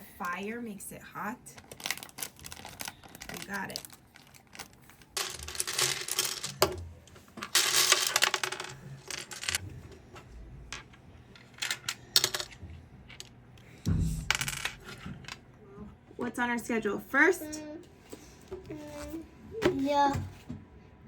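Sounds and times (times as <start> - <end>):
small hard objects clattering: 1.6 - 6.8, 7.4 - 9.6.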